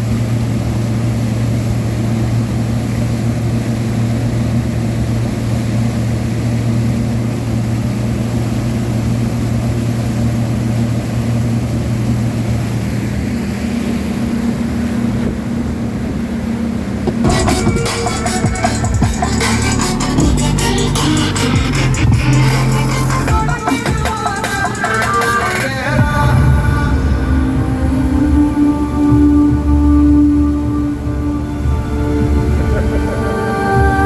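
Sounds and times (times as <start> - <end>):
motorboat engine running: 0.0 - 34.0
music: 17.1 - 34.0.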